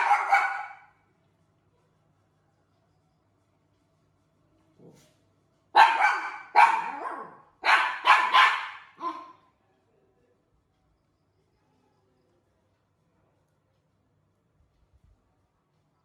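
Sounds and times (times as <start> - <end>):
dog barking: 0.0 - 0.9, 5.8 - 9.4.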